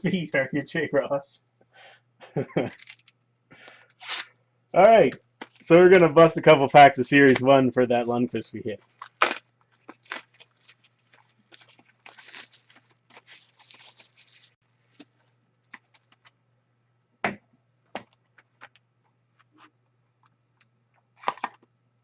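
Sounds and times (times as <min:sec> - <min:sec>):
foil wrappers crinkling and tearing: 0:02.6 - 0:03.1, 0:08.8 - 0:14.6.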